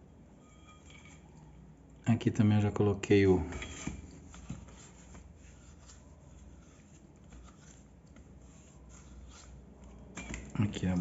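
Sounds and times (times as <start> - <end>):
low room hum: 0.0 - 11.0
handling noises with soft clicks: 3.5 - 11.0.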